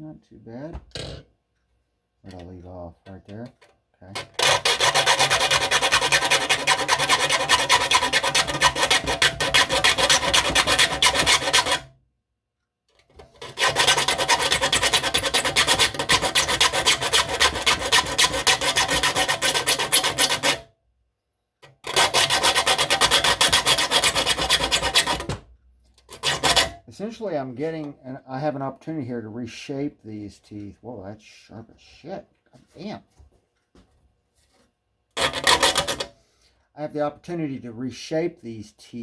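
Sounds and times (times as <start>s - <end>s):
file rasping on saw teeth: 4.2s - 11.9s, 13.4s - 20.6s, 21.8s - 25.3s, 26.1s - 26.8s, 35.2s - 36.1s.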